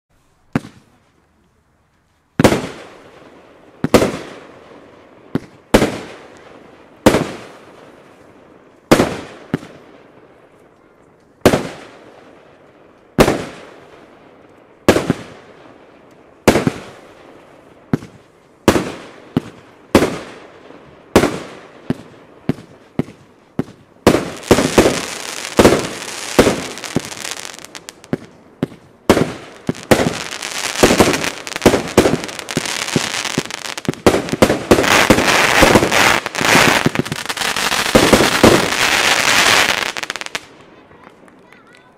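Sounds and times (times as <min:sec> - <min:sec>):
fireworks cake firing: 0:17.9 - 0:41.6.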